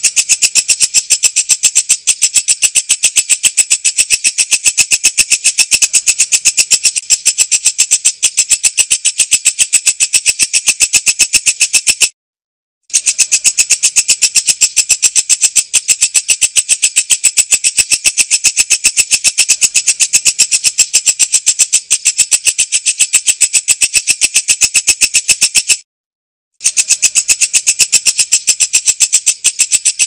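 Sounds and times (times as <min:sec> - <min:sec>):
katydid chirping: 0:00.0 - 0:12.1, 0:12.9 - 0:25.8, 0:26.6 - 0:30.0.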